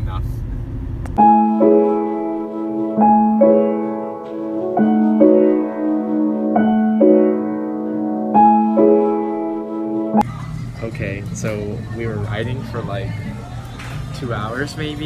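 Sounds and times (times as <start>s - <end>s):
slow piano chords: 1.2s - 10.2s.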